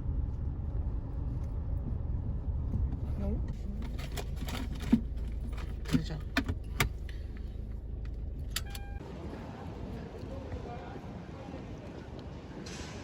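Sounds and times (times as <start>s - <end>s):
vehicle engine low rumble: 0.0s - 13.0s
short beep: 8.6s - 9.0s.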